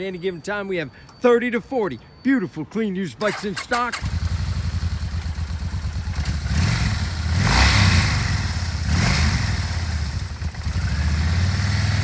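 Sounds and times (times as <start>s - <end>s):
motorcycle engine idling and revving: 3.3s - 12.0s.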